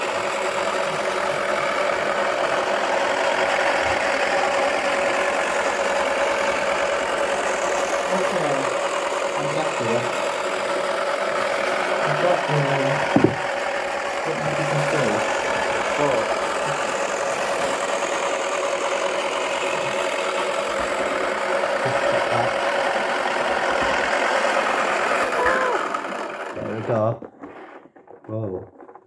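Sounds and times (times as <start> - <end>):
small electric motor humming: 0.0 - 27.2
single knock: 13.2 - 13.4.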